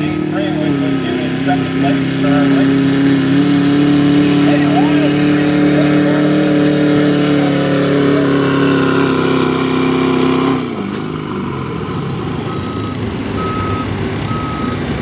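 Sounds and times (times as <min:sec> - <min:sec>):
diesel truck engine revving: 0:00.0 - 0:15.0
backup alarm beeping: 0:12.4 - 0:15.0.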